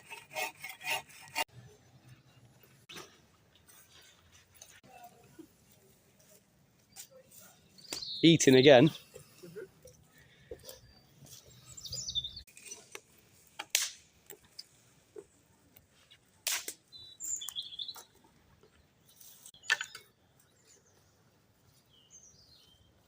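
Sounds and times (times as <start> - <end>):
small birds chirping: 3.8 - 13.2, 16.8 - 23.0.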